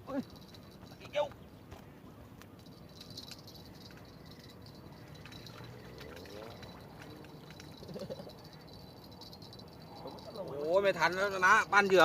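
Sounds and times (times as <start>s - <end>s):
faint insect chirring: 2.6s - 11.3s
small clicks: 5.1s - 8.3s.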